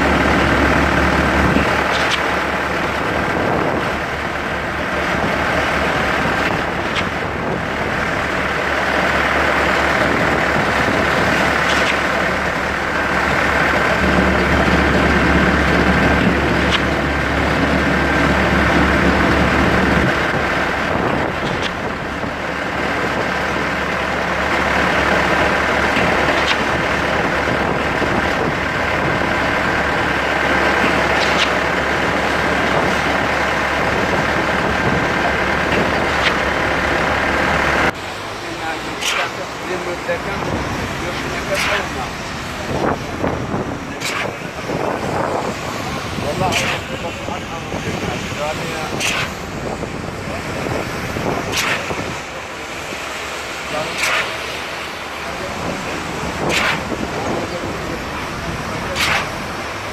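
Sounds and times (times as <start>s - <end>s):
traffic noise: 0.0s - 59.9s
brief clicks: 39.0s - 39.4s, 44.0s - 44.3s, 49.0s - 49.4s, 51.5s - 52.1s, 53.9s - 54.5s, 59.0s - 59.4s.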